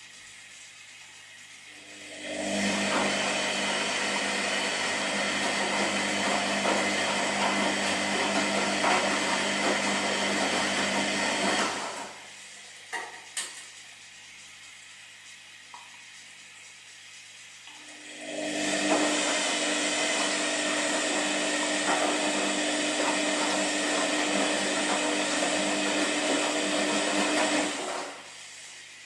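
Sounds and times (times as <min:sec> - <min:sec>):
washing machine motor whirring: 0:00.0 - 0:29.0.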